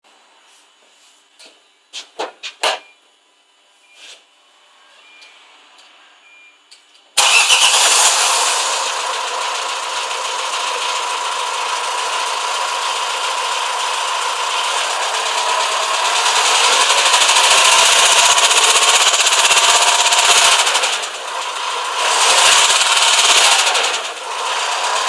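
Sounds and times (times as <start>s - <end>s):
diesel engine starting and idling: 7.2s - 25.0s.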